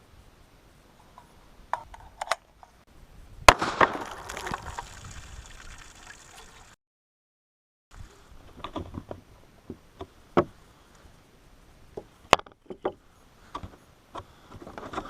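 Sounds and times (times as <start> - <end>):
sharp gunshot: 3.5 - 4.5
water splashing and spilling: 3.9 - 6.8.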